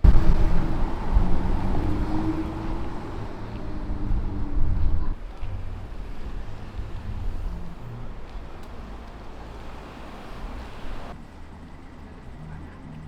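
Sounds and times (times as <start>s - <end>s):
wind noise on microphone: 0.0s - 9.0s
vehicle engine rumble: 0.0s - 13.0s.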